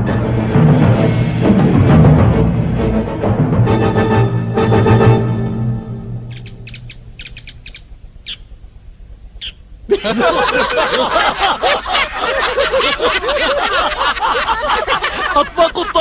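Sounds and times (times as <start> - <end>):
bird chirps: 6.2 - 8.7, 9.4 - 9.7.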